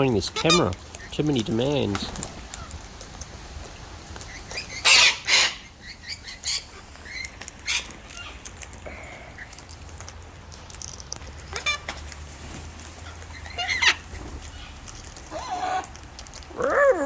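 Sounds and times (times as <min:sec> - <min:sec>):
cockatoos screeching: 0:04.4 - 0:08.4, 0:13.0 - 0:15.9.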